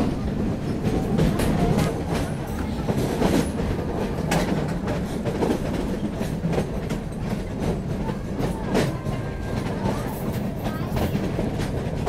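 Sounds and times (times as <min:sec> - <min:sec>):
train rumbling: 0:00.0 - 0:12.0
wheels clacking over rail joints: 0:00.0 - 0:12.0.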